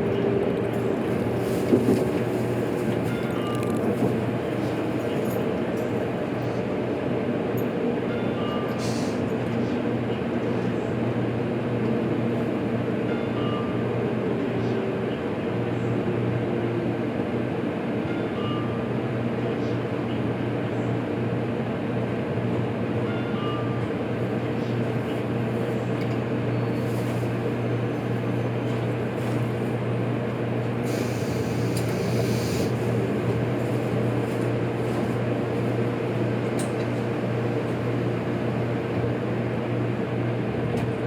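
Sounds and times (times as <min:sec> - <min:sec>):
train interior hum: 0:00.0 - 0:10.7, 0:19.6 - 0:41.0
burst of hiss: 0:30.9 - 0:32.8.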